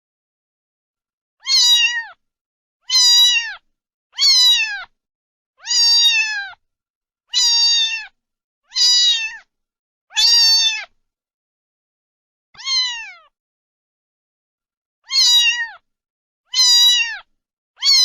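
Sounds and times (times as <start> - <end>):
cat meowing: 1.4 - 2.2, 2.8 - 5.0, 5.6 - 6.6, 7.3 - 9.5, 10.1 - 11.0, 12.6 - 13.4, 15.0 - 15.8, 16.5 - 18.0.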